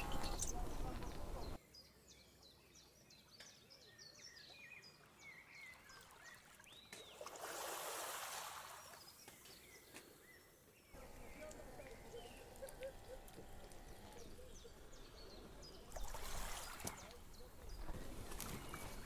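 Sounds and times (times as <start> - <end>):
small birds chirping: 0.0 - 7.3, 8.6 - 19.0.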